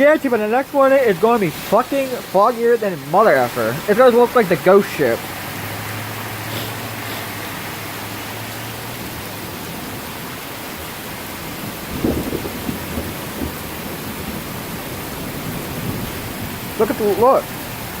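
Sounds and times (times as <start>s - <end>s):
heavy rain falling: 0.0s - 18.0s
thunder rumbling: 8.9s - 18.0s.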